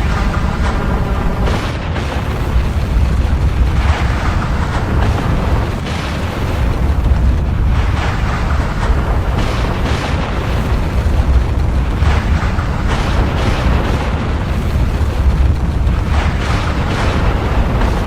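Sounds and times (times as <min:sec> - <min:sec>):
volcanic eruption rumbling: 0:00.0 - 0:18.0.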